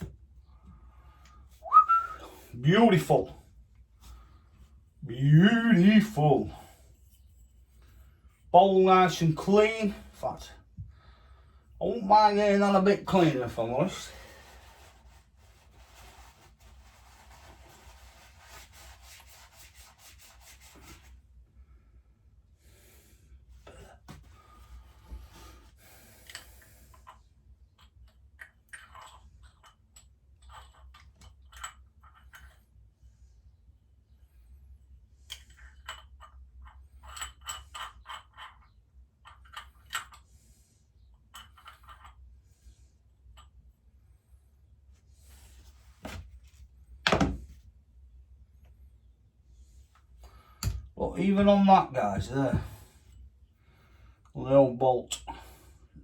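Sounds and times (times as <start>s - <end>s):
hand scrubbing metal bowl: 12.5s - 21.1s.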